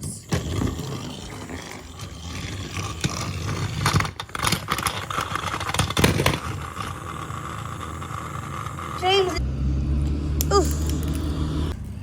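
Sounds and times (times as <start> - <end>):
toy train motor whirring: 0.0 - 9.4
toy train clattering and clicking: 0.3 - 9.4.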